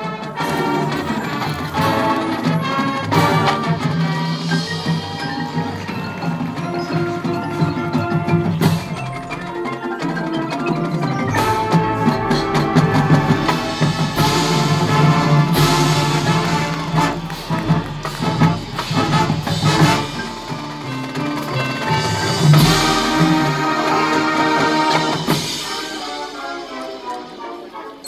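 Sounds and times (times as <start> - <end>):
marching band playing: 0.0 - 28.0
marimba and bells notes: 0.3 - 27.8
deep low brass notes: 11.4 - 28.0.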